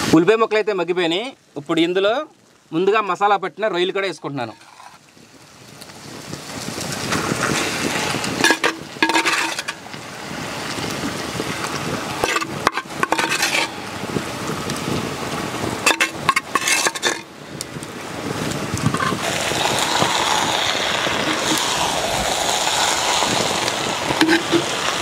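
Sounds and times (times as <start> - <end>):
prawns sizzling in hot oil: 4.4 - 25.0
metal spoon scraping clay bowl: 8.4 - 9.8, 12.2 - 13.8, 15.8 - 17.3, 18.8 - 19.2, 21.2 - 21.6, 24.2 - 24.7.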